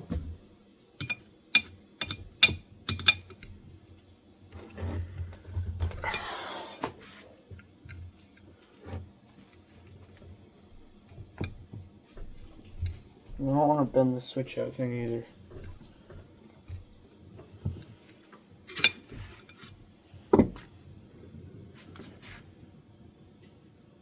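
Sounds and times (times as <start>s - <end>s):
sharp metal clicks and taps: 1.0s - 3.5s.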